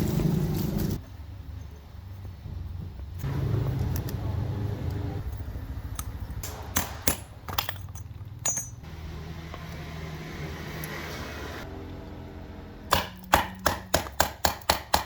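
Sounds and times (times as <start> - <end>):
low motor hum: 7.9 - 13.4.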